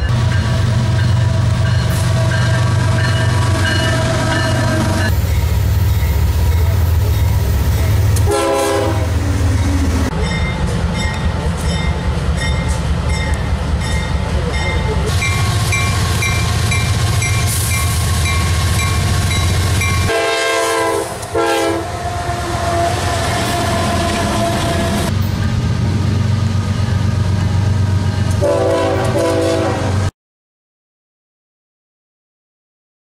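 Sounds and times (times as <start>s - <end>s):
diesel locomotive engine drone: 0.0s - 30.1s
multi-tone air horn: 8.3s - 9.2s, 20.1s - 25.0s, 28.4s - 30.0s.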